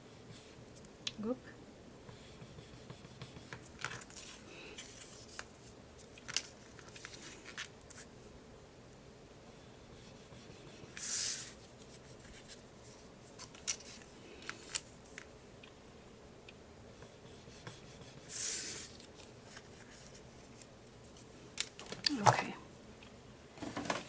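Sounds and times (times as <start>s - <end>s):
paper rustling: 3.6s - 8.1s, 10.9s - 15.2s.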